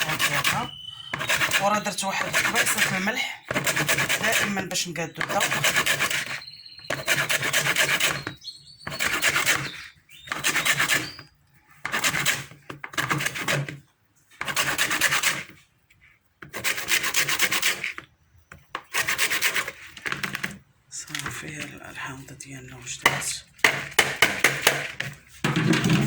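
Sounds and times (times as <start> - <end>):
lemon scraping on grater: 0.0 - 11.2.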